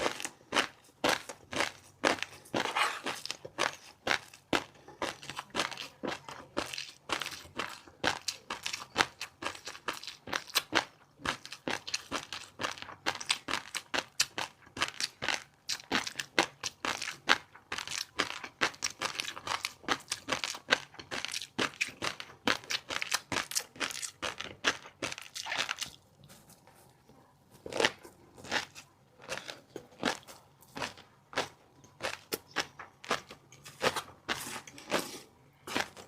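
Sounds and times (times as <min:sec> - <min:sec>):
chewing crunchy seafood: 0:00.0 - 0:36.0.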